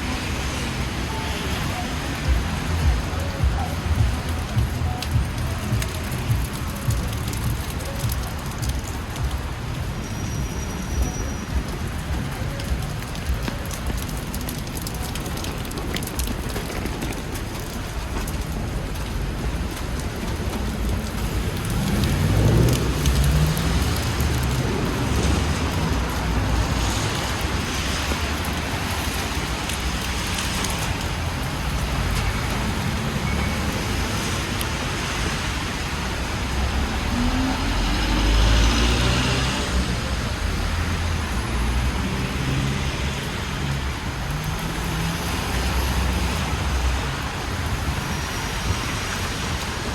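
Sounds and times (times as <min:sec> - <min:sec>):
steady rain: 0:00.0 - 0:49.9
vehicles passing on wet road: 0:00.0 - 0:49.9.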